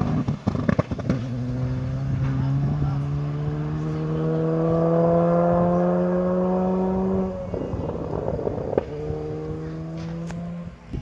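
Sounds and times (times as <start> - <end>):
rally car engine revving: 0.0 - 11.0
rush of rough noise: 0.0 - 11.0
sharp crack: 9.9 - 10.5.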